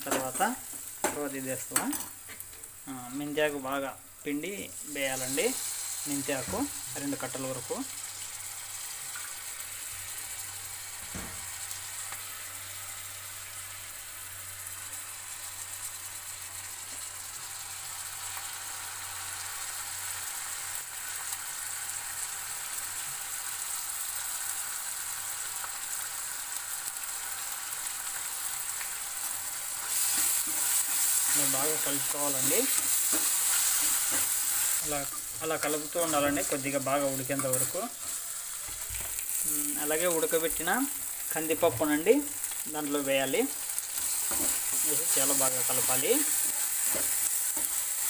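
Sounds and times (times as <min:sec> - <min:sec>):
vegetables sizzling in a pan: 0:00.0 - 0:48.0.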